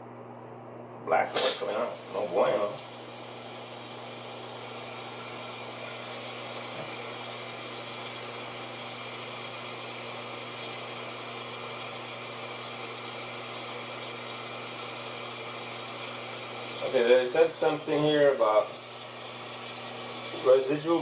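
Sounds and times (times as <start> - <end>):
water spraying into toilet bowl: 1.3 - 21.0.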